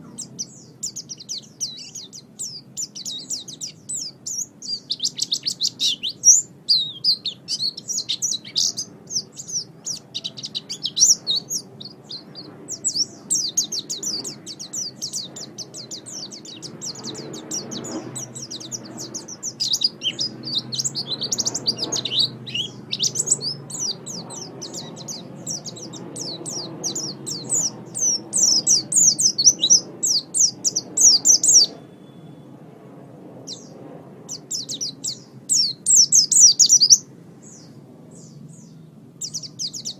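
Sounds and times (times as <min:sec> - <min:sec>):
bird chattering warble: 0:00.0 - 0:31.9.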